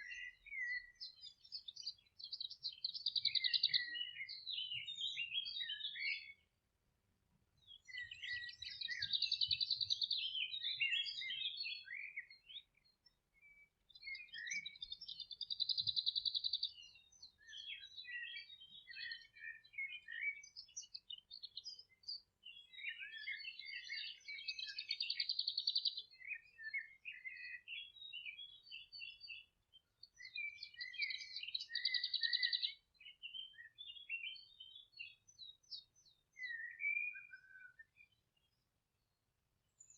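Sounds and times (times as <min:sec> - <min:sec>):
bird twittering: 0:30.2 - 0:34.6.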